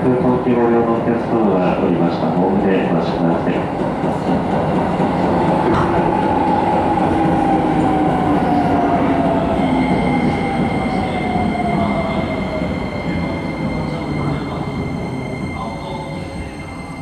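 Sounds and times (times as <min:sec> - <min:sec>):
train running rumble: 0:00.0 - 0:17.0
high-pitched brake squeal: 0:12.9 - 0:17.0.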